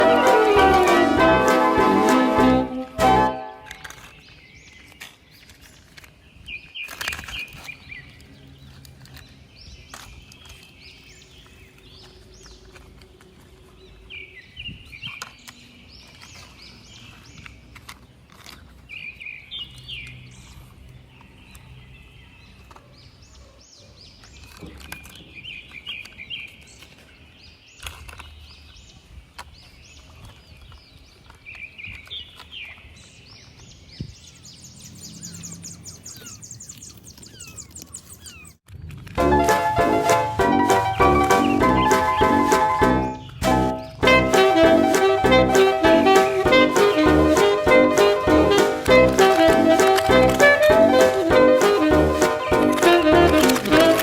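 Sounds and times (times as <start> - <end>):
faint outdoor background noise: 0.0 - 54.0
small birds chirping: 3.7 - 38.6, 39.3 - 54.0.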